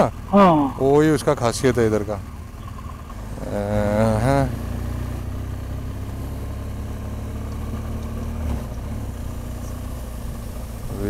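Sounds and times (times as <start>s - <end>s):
motorcycle engine running: 0.0s - 11.0s
road and wind noise: 0.0s - 11.0s.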